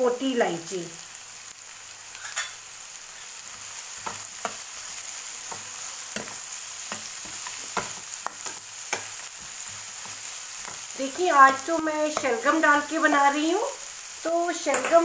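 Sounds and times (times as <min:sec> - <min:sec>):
onions sizzling in oil: 0:00.0 - 0:15.0
spoon scraping and tapping pan: 0:02.1 - 0:02.6, 0:04.0 - 0:04.8, 0:05.4 - 0:10.9, 0:14.7 - 0:15.0.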